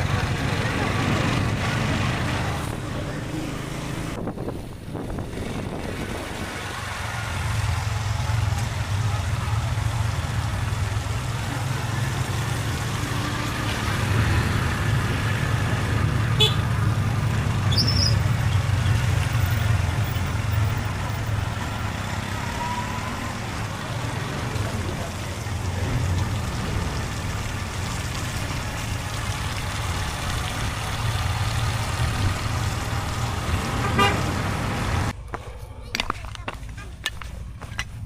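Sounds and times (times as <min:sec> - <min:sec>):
wind and road noise: 0:00.0 - 0:38.0.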